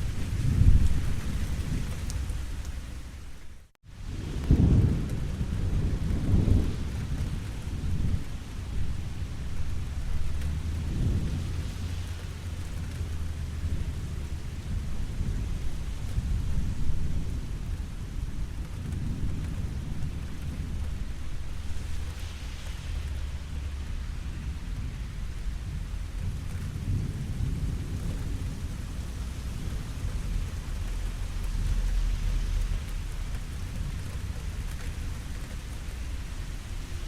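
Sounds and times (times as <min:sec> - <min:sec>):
rolling thunder: 0:00.0 - 0:03.2, 0:03.9 - 0:37.0
steady rainfall: 0:00.0 - 0:37.0.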